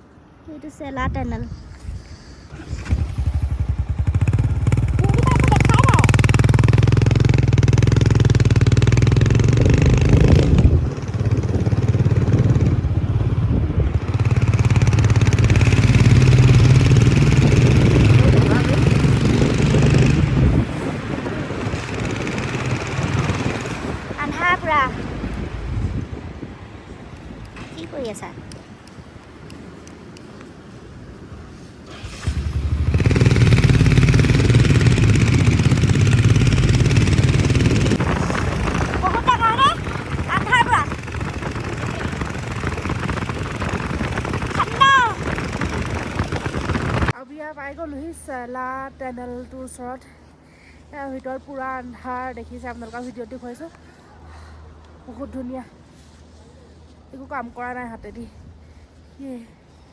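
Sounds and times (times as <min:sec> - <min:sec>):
motorcycle engine running: 0:02.5 - 0:26.1, 0:31.9 - 0:47.2.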